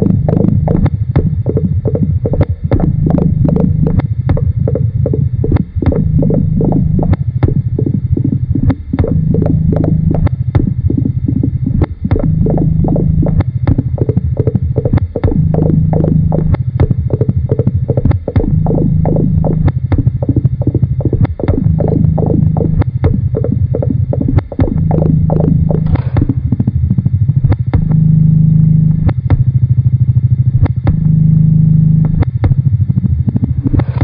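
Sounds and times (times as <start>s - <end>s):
low throbbing electronic drone: 0.0s - 34.0s
sharp clicks: 11.8s - 26.6s.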